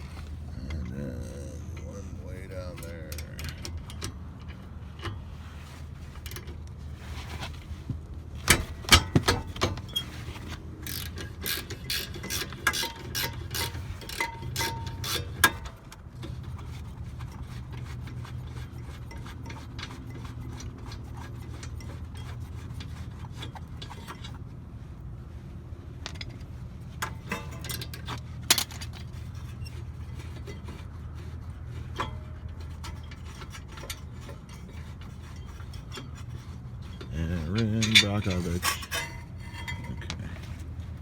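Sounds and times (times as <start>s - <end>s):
steady low hum: 0.0s - 17.8s, 21.0s - 41.0s
hand ratchet clicking: 10.8s - 15.6s.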